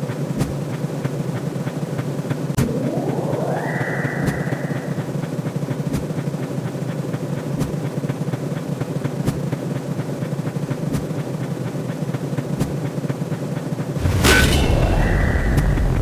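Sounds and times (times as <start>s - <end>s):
dense rumbling: 2.6s - 5.3s, 14.0s - 16.0s.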